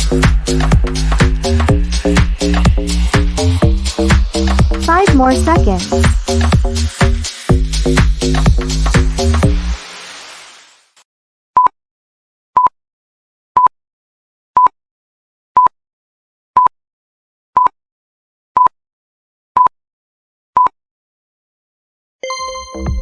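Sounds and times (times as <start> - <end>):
electronic dance music: 0.0 - 11.0, 22.2 - 23.0
interval timer beeping: 22.2 - 23.0.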